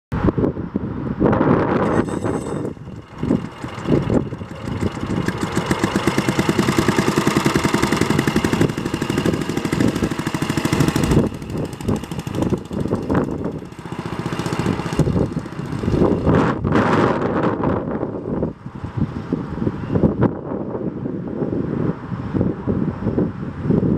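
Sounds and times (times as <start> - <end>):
scooter engine running: 1.7 - 17.0.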